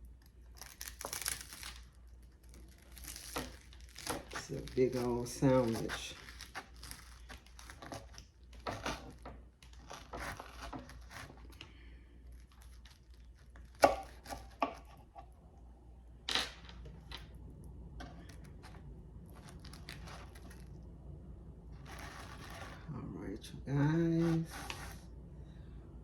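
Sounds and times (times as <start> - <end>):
knife sawing through bread: 4.1 - 9.2, 9.8 - 11.5, 21.8 - 22.9, 24.2 - 25.0.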